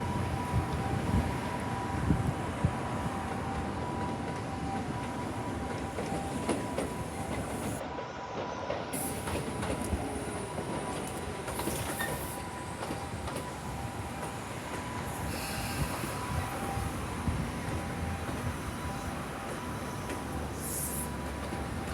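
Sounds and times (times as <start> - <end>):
clicks of train on tracks: 0.0 - 21.9
electric train wheels on rail: 0.0 - 21.9.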